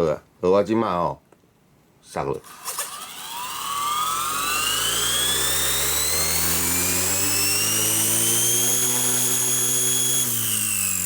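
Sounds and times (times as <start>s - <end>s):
electric motor whine rising: 2.4s - 11.0s
rotor hum: 2.4s - 11.0s.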